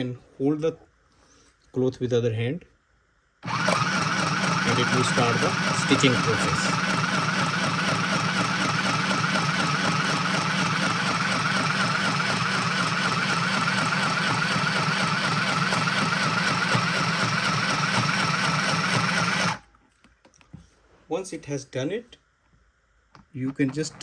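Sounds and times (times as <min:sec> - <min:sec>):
needle mechanism rattling: 0:03.4 - 0:19.6
sewing machine motor whirring: 0:03.4 - 0:19.6.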